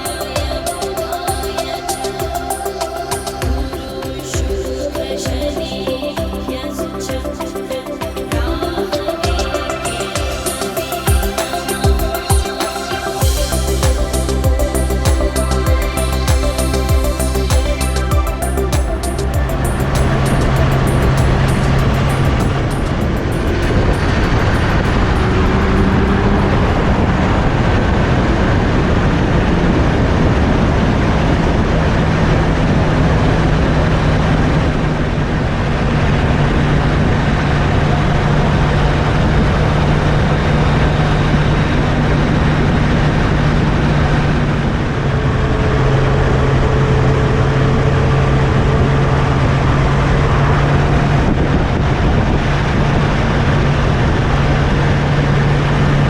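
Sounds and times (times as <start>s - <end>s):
motorcycle engine cruising: 13.2s - 29.2s
wind rush on microphone: 13.2s - 56.0s.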